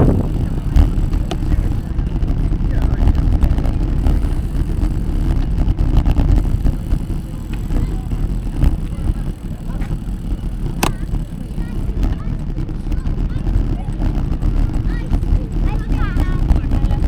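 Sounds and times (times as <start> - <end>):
wind and road noise rumble: 0.0 - 17.0
sharp click: 9.7 - 11.5.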